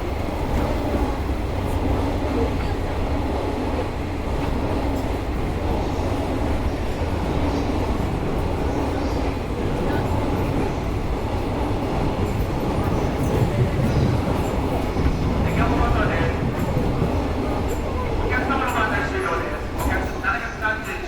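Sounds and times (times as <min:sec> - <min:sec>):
train equipment humming: 0:00.0 - 0:21.0.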